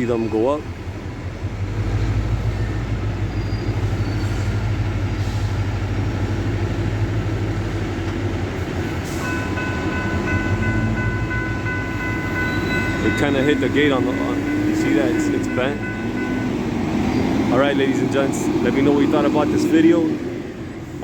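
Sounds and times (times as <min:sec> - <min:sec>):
freight train rumbling: 0:00.0 - 0:21.0
crossing bells ringing: 0:08.6 - 0:20.8.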